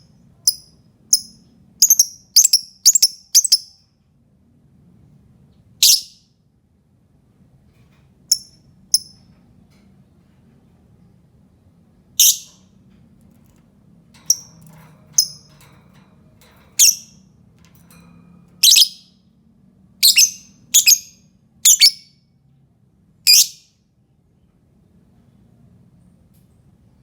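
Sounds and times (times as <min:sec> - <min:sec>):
lovebird shrill chirps: 0:00.5 - 0:03.8, 0:05.8 - 0:06.2, 0:12.2 - 0:12.6, 0:16.8 - 0:17.2, 0:18.6 - 0:19.1, 0:20.0 - 0:22.1, 0:23.3 - 0:23.6.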